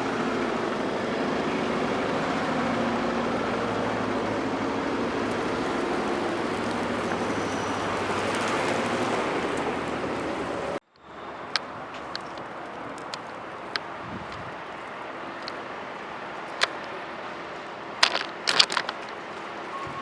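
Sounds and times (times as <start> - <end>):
car engine and road noise: 0.0 - 20.0
road rumble: 0.0 - 20.0
light ticks: 11.5 - 15.6, 18.0 - 19.2.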